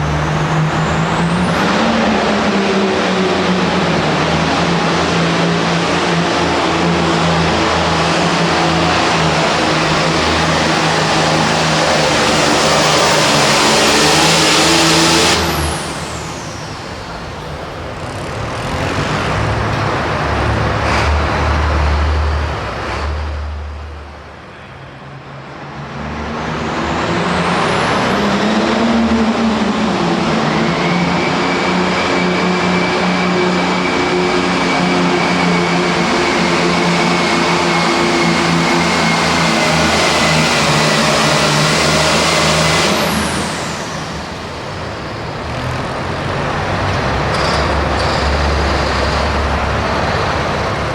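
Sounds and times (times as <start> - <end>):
tractor diesel engine running hard: 0.0 - 24.3, 25.6 - 50.9
high whine: 29.2 - 49.8.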